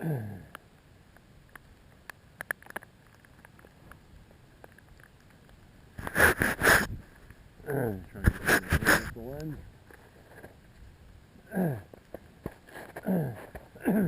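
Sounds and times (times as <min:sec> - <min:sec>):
freezing rain ticking: 0:00.4 - 0:13.9
rustling noise: 0:02.7 - 0:07.4, 0:08.0 - 0:11.0, 0:11.9 - 0:13.8.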